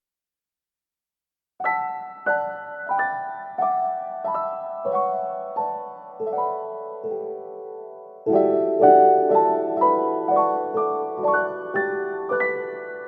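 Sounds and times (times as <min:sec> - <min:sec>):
slow solo piano music: 0:01.6 - 0:13.0.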